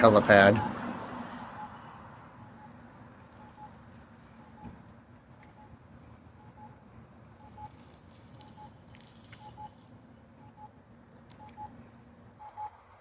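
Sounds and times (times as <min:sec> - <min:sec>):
crossing signal double beep: 0:01.5 - 0:01.8, 0:02.4 - 0:03.8, 0:04.4 - 0:04.8, 0:05.5 - 0:05.8, 0:06.4 - 0:06.8, 0:07.4 - 0:07.8, 0:09.4 - 0:09.8, 0:10.4 - 0:10.8, 0:12.4 - 0:12.8.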